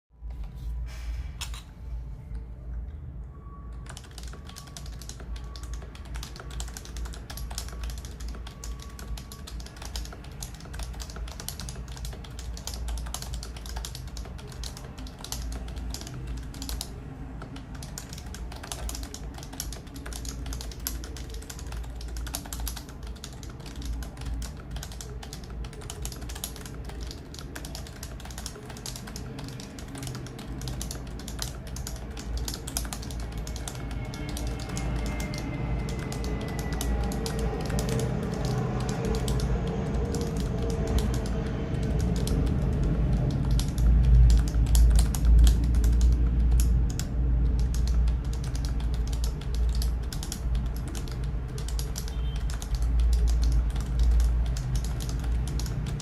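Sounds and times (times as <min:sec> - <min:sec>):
fast typing on keyboard: 0:03.7 - 0:56.0.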